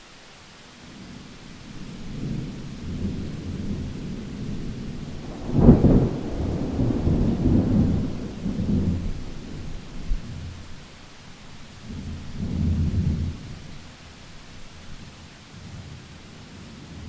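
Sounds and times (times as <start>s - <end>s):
rain: 0.0s - 17.0s
thunder rumbling: 1.6s - 10.9s
thunder clap: 2.1s - 10.5s.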